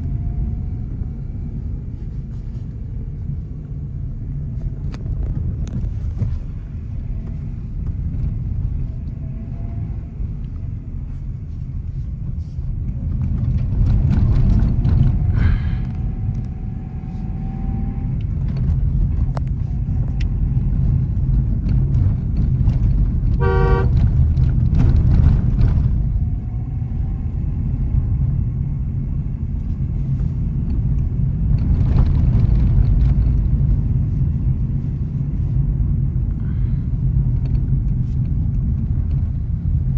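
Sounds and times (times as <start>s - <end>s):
engine and road noise rumble: 0.0s - 39.9s
car horn toot: 23.4s - 24.0s.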